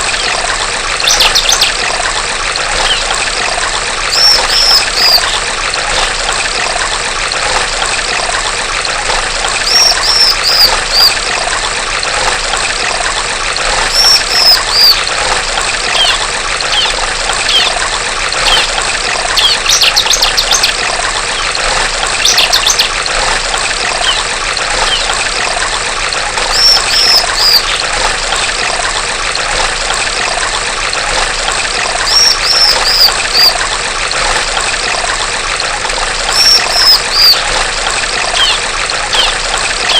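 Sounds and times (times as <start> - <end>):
water trickling: 0.0 - 39.9
bird rattling trills: 1.0 - 1.8, 2.7 - 3.1, 4.1 - 5.4, 9.6 - 11.2, 13.9 - 15.1, 15.9 - 17.8, 18.4 - 18.8, 19.4 - 21.6, 22.2 - 23.0, 24.0 - 25.1, 26.5 - 27.8, 32.0 - 33.6, 36.2 - 37.6, 38.3 - 39.9
bird chirping: 4.1 - 5.4, 9.7 - 11.2, 13.9 - 15.0, 16.0 - 17.8, 26.5 - 27.8, 32.0 - 33.6, 36.3 - 37.4.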